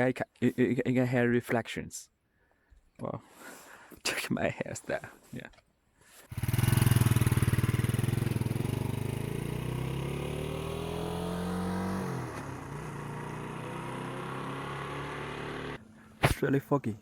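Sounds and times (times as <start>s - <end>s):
motorcycle engine pulling away: 6.3s - 16.0s.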